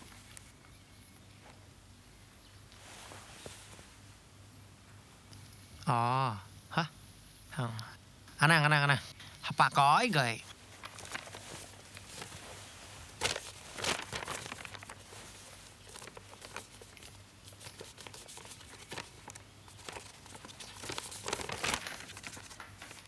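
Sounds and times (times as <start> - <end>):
material rustling and crinkling: 2.6 - 4.2, 10.4 - 23.0.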